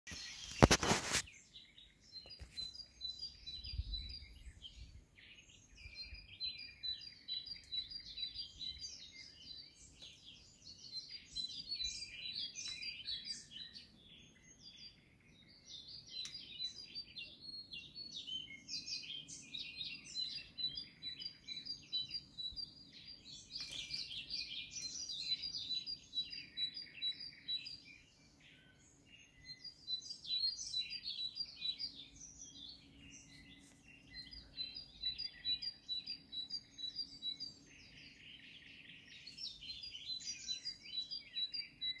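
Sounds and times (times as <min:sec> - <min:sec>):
songbird song: 0:00.0 - 0:42.0.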